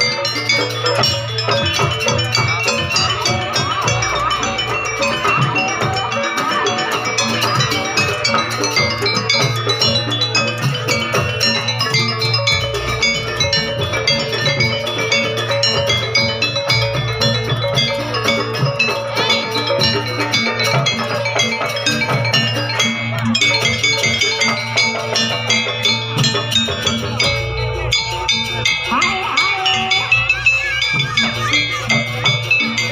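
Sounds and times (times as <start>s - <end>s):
drums: 0.0s - 32.9s
metallophone notes: 0.0s - 32.9s.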